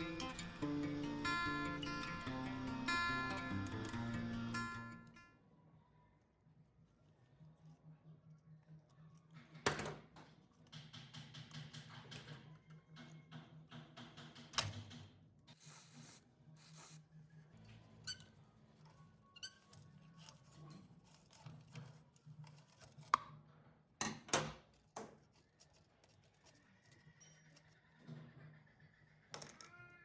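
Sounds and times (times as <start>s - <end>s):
tools clicking and knocking: 9.4s - 15.2s.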